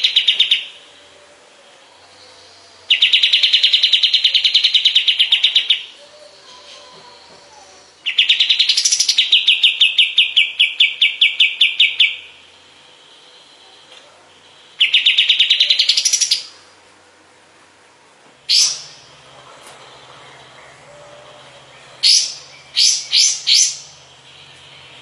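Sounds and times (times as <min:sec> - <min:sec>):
songbird trilling: 0:00.0 - 0:00.8, 0:02.0 - 0:12.4, 0:13.2 - 0:16.6, 0:18.5 - 0:19.2, 0:19.8 - 0:25.0
sharp bird call: 0:18.5 - 0:19.1, 0:20.6 - 0:25.0.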